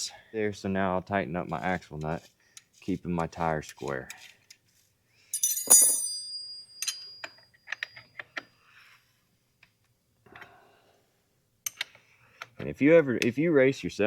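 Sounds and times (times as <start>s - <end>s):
loud metal clink: 5.4s - 7.9s.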